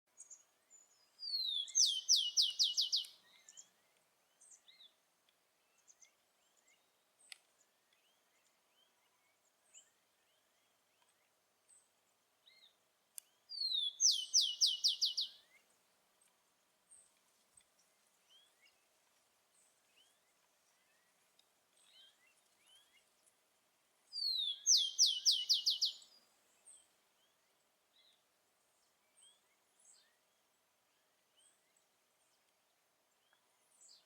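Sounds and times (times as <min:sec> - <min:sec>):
faint bird chirps: 0:00.1 - 0:05.0, 0:05.6 - 0:15.8, 0:24.1 - 0:28.2
sparrow singing: 0:00.2 - 0:03.7, 0:13.2 - 0:15.6, 0:24.2 - 0:26.2.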